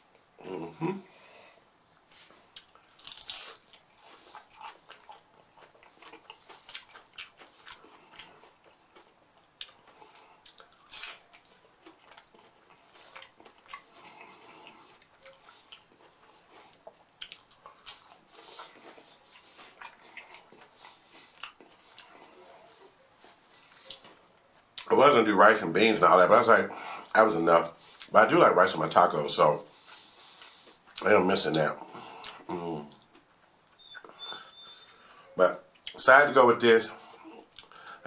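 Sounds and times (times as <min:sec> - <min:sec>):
mouth sounds: 0:00.4 - 0:01.2, 0:31.0 - 0:33.1
crunchy tacos being chewed: 0:02.0 - 0:24.9, 0:26.7 - 0:36.4, 0:37.0 - 0:38.0.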